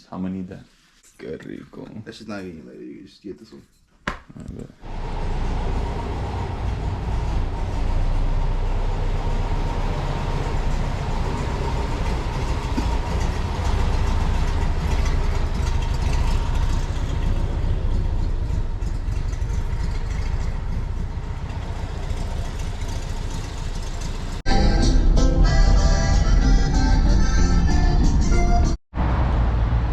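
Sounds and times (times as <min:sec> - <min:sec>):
vehicle engine rumble: 0:04.8 - 0:24.4, 0:25.4 - 0:29.9
music: 0:24.5 - 0:28.8.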